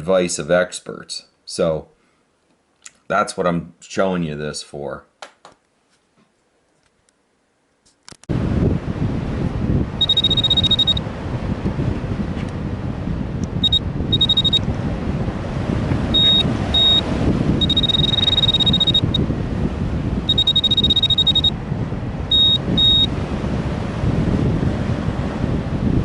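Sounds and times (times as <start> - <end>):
wind rumble on microphone: 8.3 - 26.0
high electronic beeping: 10.0 - 11.0, 13.6 - 14.6, 16.1 - 17.0, 17.6 - 19.2, 20.3 - 21.6, 22.3 - 23.1.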